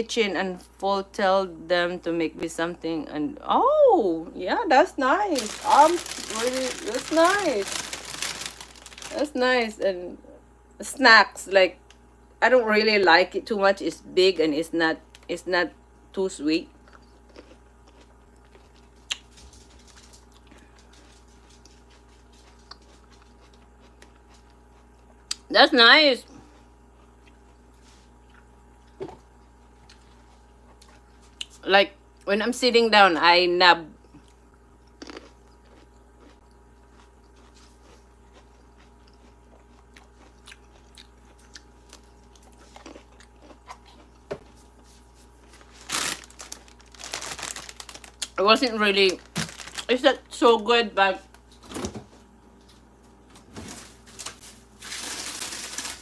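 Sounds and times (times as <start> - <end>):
person chewing grape: 16.7 - 19.4, 20.2 - 25.4, 26.9 - 31.6, 34.0 - 48.4.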